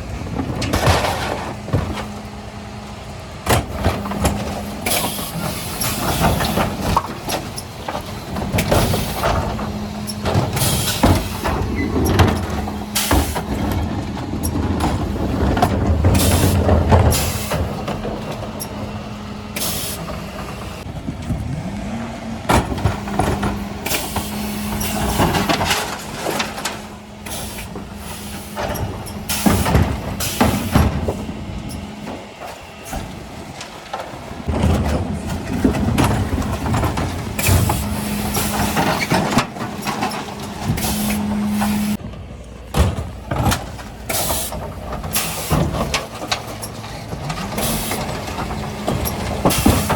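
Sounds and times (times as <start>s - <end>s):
truck engine hum: 0.0s - 49.9s
metal clanks and knocks: 0.1s - 2.4s, 3.4s - 21.6s, 22.4s - 49.9s.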